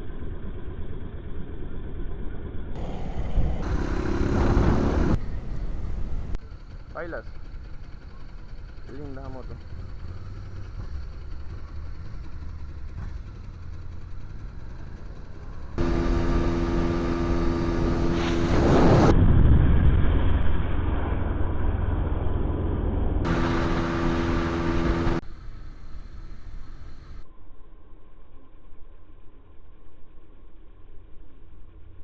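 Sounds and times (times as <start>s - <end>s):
motorcycle engines running: 0.1s - 19.1s, 23.2s - 27.2s
motorcycle passing close: 2.8s - 19.2s, 23.2s - 25.2s.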